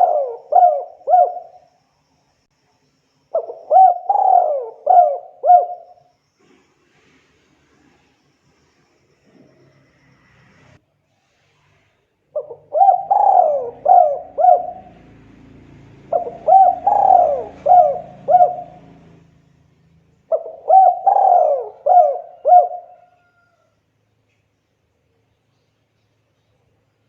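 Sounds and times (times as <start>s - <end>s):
dove cooing: 0.0s - 1.7s, 3.4s - 6.0s, 12.4s - 19.3s, 20.3s - 23.5s.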